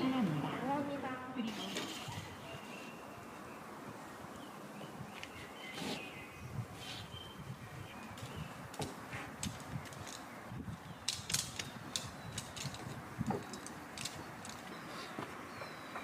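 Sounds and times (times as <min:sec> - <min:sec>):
small parts clicking and knocking: 0:08.7 - 0:10.3, 0:11.0 - 0:14.8.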